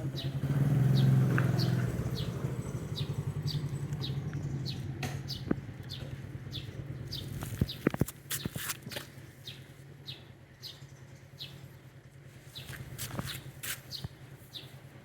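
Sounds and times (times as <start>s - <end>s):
small bird chirping: 0.0s - 8.7s, 12.5s - 14.8s.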